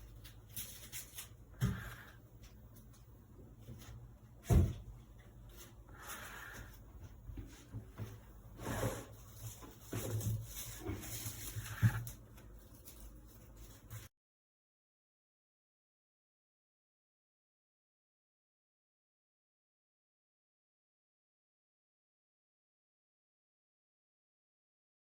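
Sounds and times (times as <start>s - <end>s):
soft rubbing and rustling: 5.1s - 14.1s.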